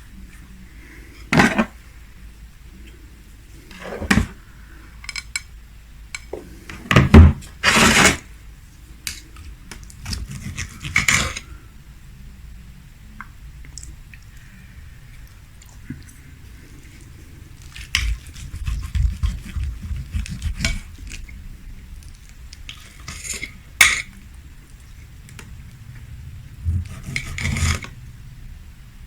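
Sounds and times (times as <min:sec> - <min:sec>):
cutlery scraping on a plate: 0:26.8 - 0:27.9.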